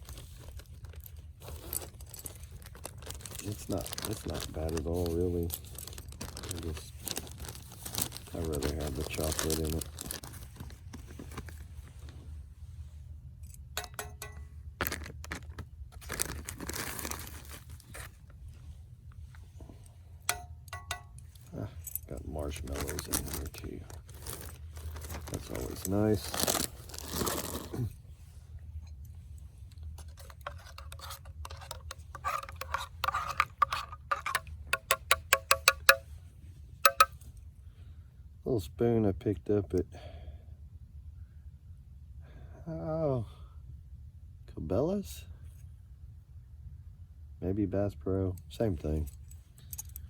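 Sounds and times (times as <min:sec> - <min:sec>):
low steady rumble: 0:00.0 - 0:50.0
packet tearing and crinkling: 0:01.5 - 0:10.8, 0:14.8 - 0:18.1, 0:22.6 - 0:27.8
spoon stirring in a cup: 0:30.2 - 0:36.0, 0:36.9 - 0:37.1
spoon tapping cup rim: 0:34.8 - 0:36.0, 0:36.9 - 0:37.1.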